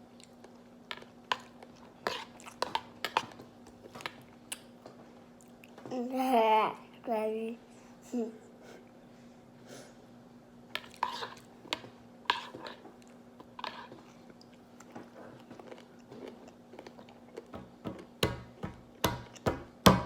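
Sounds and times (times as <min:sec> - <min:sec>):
person chewing berries: 0:13.0 - 0:18.2.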